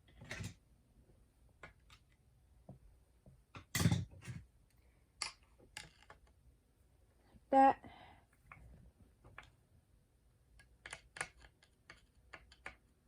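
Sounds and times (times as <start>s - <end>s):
hand tools clicking and tapping: 10.6s - 12.9s.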